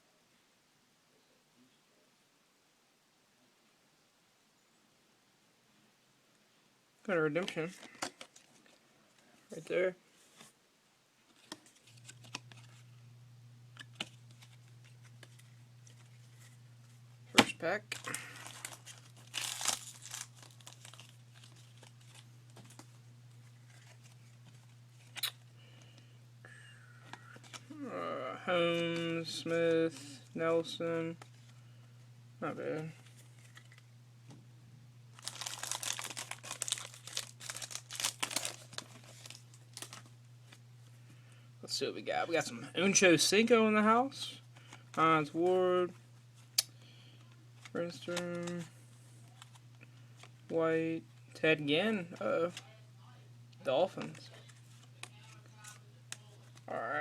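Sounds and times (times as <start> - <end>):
steady low hum: 7.0 - 57.0
rustling of cards and foil packs: 7.1 - 10.6, 11.2 - 13.0, 13.7 - 26.2, 26.9 - 33.9, 35.1 - 41.4, 42.0 - 52.8, 53.6 - 57.0
wrapper being torn and crinkled: 17.9 - 22.9, 35.2 - 40.1.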